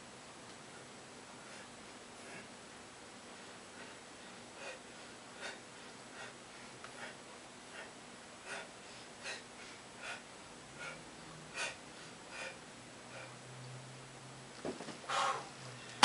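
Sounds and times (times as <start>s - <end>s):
man breathing hard: 1.3s - 2.6s, 3.3s - 13.4s, 15.1s - 16.0s.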